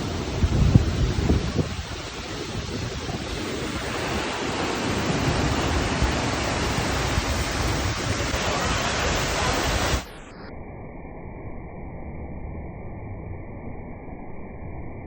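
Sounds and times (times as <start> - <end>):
waterfall rushing: 0.0 - 10.3.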